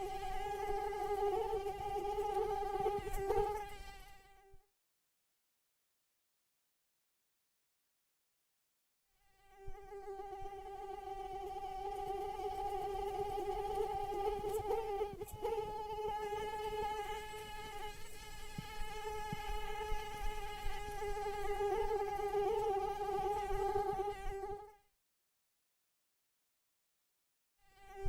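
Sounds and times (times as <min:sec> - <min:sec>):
mosquito wingbeats whining: 0:00.0 - 0:04.5, 0:09.5 - 0:24.7.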